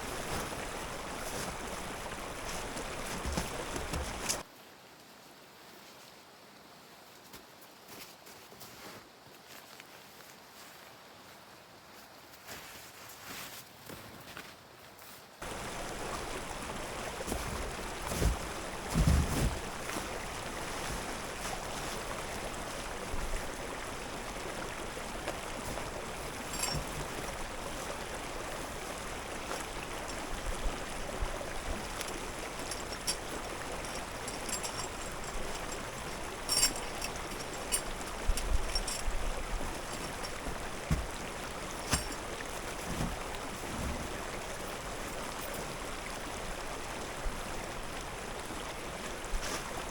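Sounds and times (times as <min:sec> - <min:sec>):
stream rushing: 0:00.0 - 0:04.5, 0:15.4 - 0:49.9.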